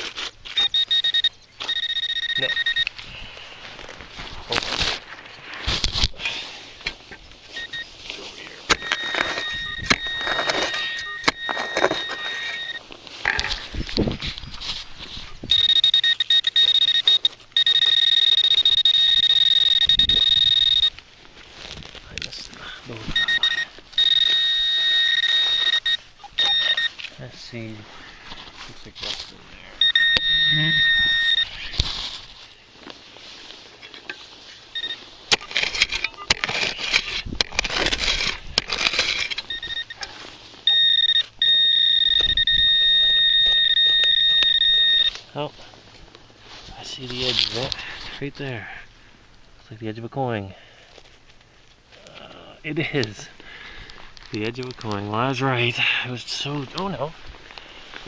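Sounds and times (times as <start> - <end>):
digging in soil: 0.0 - 40.7, 43.1 - 48.6
pinpointer electronic alert tone: 0.6 - 2.9, 8.7 - 12.8, 15.5 - 20.9, 23.1 - 27.0, 29.8 - 31.6, 40.7 - 45.2.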